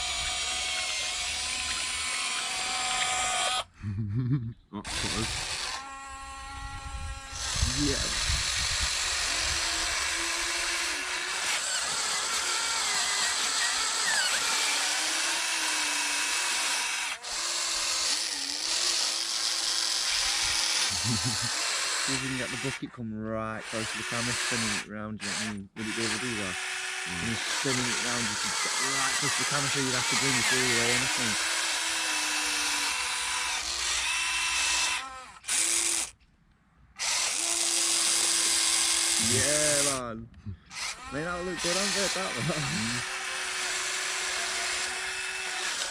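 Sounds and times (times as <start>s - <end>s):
electric motor whine: 0.0s - 3.7s, 4.9s - 22.8s, 23.6s - 36.2s, 37.0s - 40.0s, 40.7s - 45.9s.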